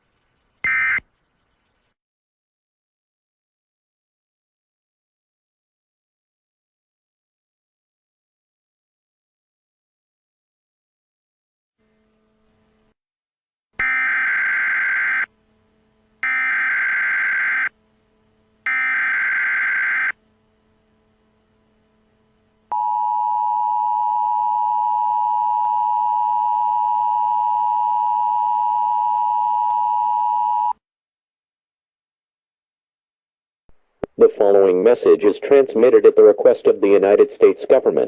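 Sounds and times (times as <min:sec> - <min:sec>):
buzzing digital data tones: 0:00.0 - 0:02.0, 0:13.8 - 0:27.9
two-tone attention signal: 0:00.6 - 0:01.1.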